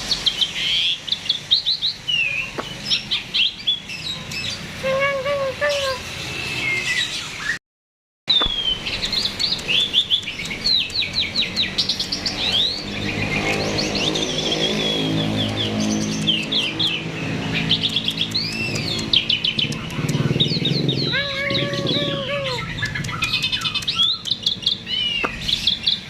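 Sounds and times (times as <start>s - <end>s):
starling singing chirps and whistles: 8.3s - 26.0s.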